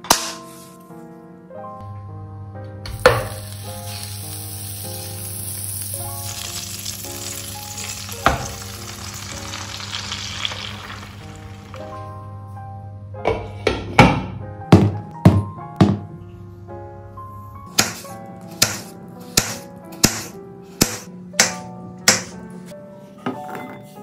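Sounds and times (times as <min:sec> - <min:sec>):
soft background music: 0:00.0 - 0:24.0
food sizzling in a frying pan: 0:02.9 - 0:12.0.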